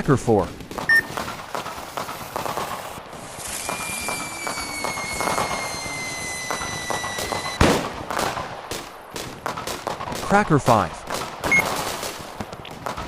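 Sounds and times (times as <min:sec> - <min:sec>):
hissing and crackling: 0:00.0 - 0:13.0
firework whistle falling: 0:03.1 - 0:07.7.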